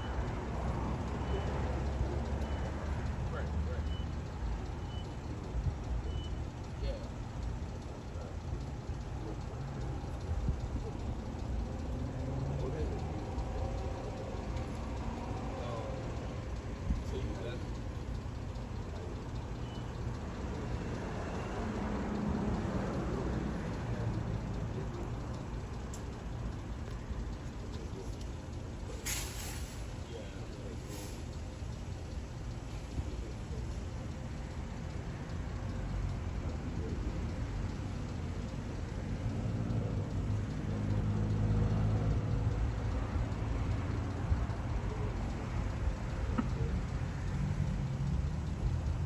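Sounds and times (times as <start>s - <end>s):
motor vehicle engine hum: 0.0s - 49.0s
steady background rumble: 2.4s - 21.2s.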